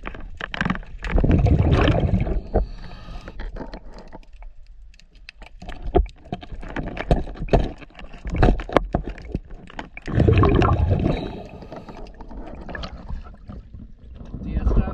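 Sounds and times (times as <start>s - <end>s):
water gurgling: 1.0s - 2.8s, 8.2s - 14.6s
gush of bubbling water: 1.1s - 2.5s, 10.0s - 13.5s.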